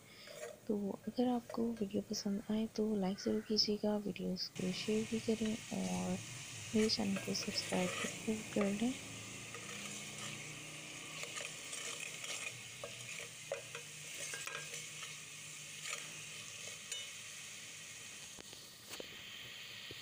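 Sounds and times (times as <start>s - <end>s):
masala sizzling in hot oil: 0.0s - 20.0s
steel spoon scraping a pot: 0.2s - 0.6s, 6.8s - 17.2s.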